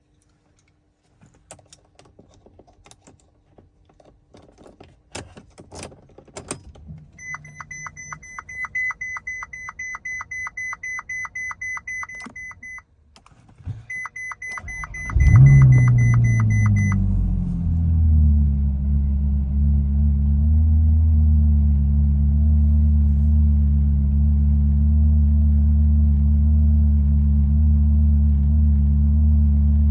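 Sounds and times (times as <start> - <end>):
car warning chime beeping: 7.2 - 12.9, 13.9 - 17.3
car engine revving and idling: 14.6 - 29.9.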